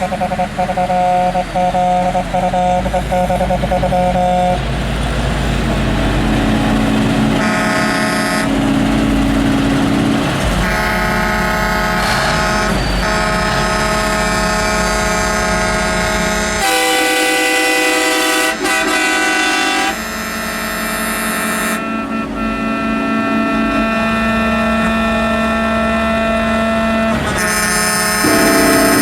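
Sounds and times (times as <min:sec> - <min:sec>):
truck air horn blasts: 0:00.0 - 0:04.6, 0:07.4 - 0:08.5, 0:10.6 - 0:20.9, 0:27.4 - 0:29.0
low rumble of truck engines: 0:00.0 - 0:18.2, 0:19.1 - 0:28.9.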